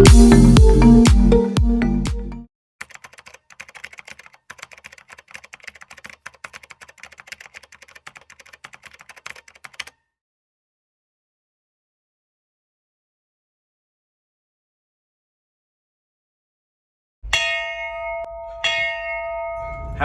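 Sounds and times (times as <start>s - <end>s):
electronic dance music: 0.0s - 2.2s
keyboard typing clicks: 2.8s - 10.0s.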